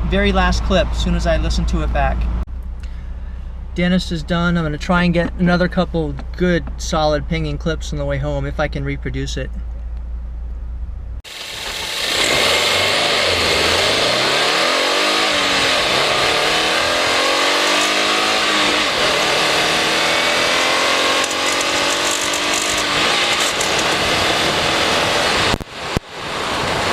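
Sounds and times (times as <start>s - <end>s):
air rush and road noise: 0.0s - 26.9s
car engine revving through gears: 11.4s - 25.6s.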